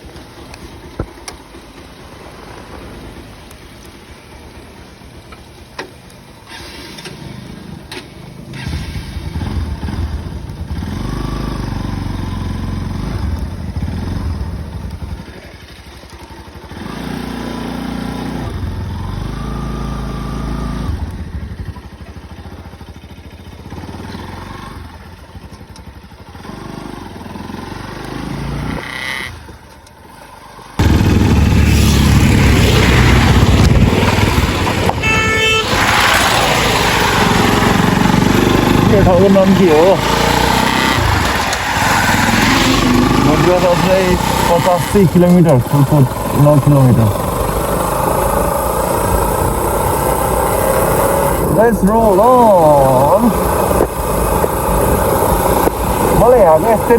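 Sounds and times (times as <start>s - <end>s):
motorcycle engine revving: 6.4s - 56.9s
wind on microphone: 32.4s - 36.0s.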